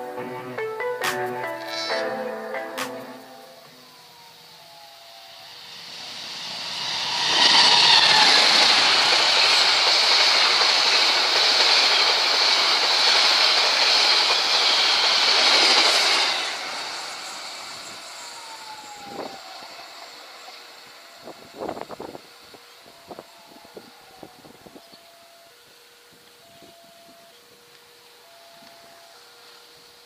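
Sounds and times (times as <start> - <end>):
train wheels rumbling and rattling: 5.9 - 19.6.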